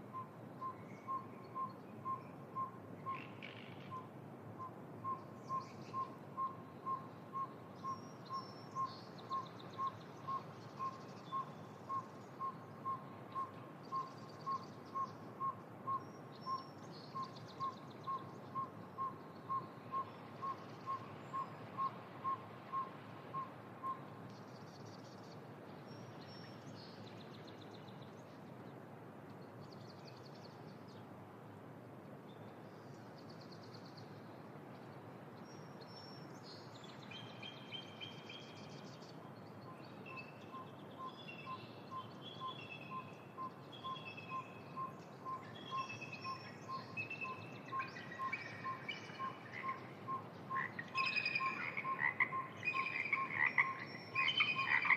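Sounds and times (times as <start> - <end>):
steady background hiss: 0.0 - 54.9
small birds chirping: 5.1 - 28.6, 34.8 - 54.9
owl tooting whistled notes: 40.1 - 50.2, 50.9 - 54.9.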